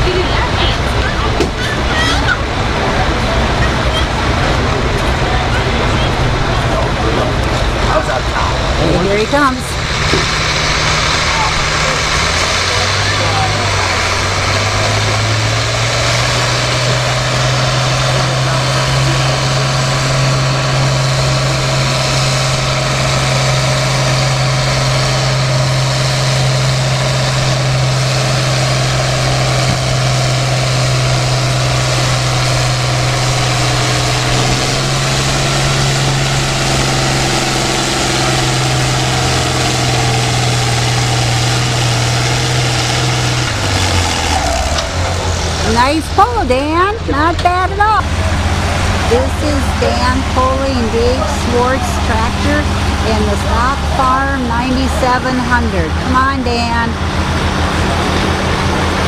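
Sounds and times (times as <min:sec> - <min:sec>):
tractor diesel engine working hard: 0:00.0 - 0:59.0.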